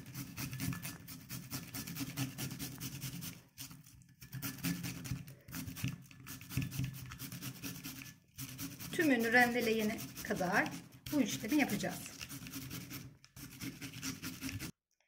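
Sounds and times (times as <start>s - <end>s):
cucumber rasping on a grater: 0.0s - 14.8s.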